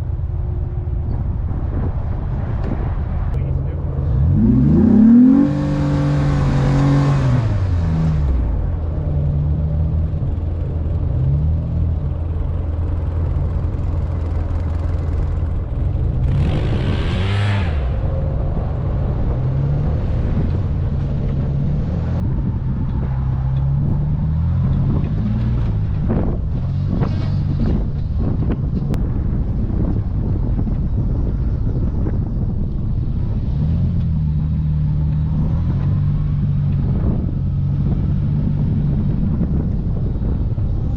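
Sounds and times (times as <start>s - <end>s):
vehicle engine under load: 0.0s - 40.9s
rush of noise: 14.6s - 40.9s.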